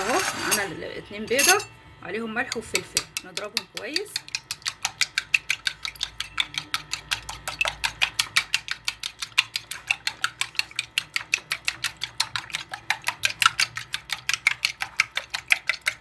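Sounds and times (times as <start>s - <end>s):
utensil beating eggs in a bowl: 0.0s - 16.0s.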